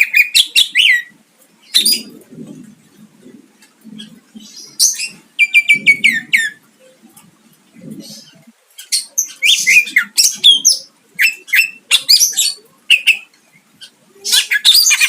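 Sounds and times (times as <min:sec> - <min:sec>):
bird singing sharp phrases: 0:03.9 - 0:07.0, 0:07.8 - 0:15.0.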